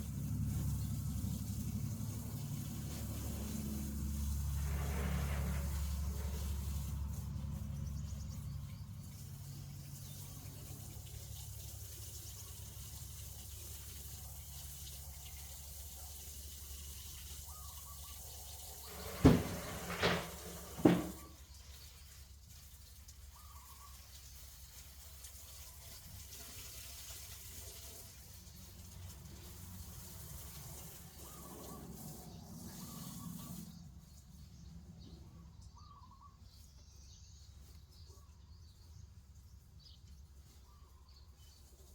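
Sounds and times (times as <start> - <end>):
tap water running: 9.1 - 32.1.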